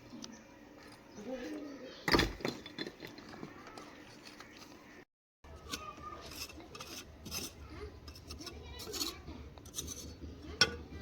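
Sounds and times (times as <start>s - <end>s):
scraping and rubbing: 5.5s - 11.0s.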